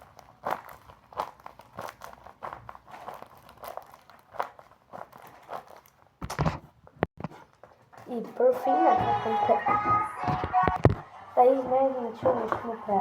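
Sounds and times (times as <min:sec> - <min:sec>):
paper crinkling and rustling: 0:00.0 - 0:08.5.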